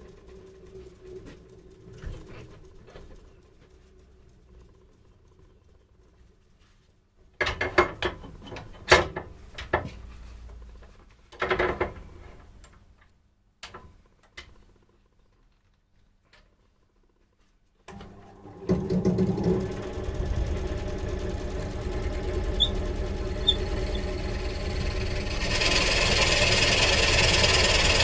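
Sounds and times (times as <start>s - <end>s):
motor running: 17.9s - 28.0s.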